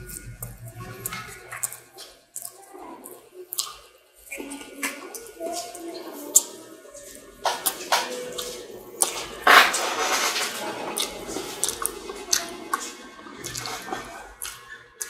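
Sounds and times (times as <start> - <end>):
wet chewing and mouth clicks: 0.0 - 15.0.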